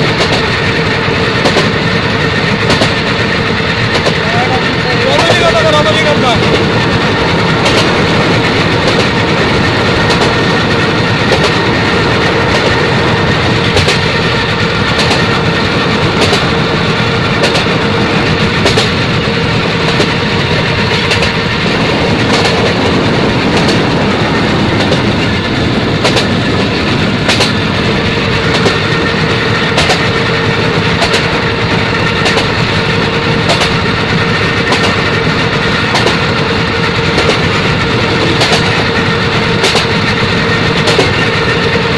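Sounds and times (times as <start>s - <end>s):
train rumbling along track: 0.0s - 41.9s
wheels clicking over rail joints: 0.0s - 41.9s.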